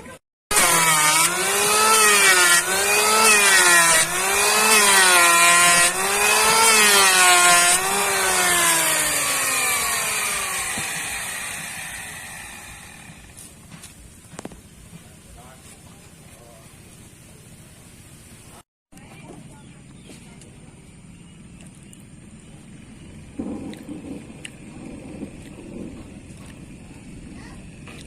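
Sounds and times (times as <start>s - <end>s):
electric power tool cutting: 0.5s - 13.4s
motor winding down: 0.5s - 13.4s.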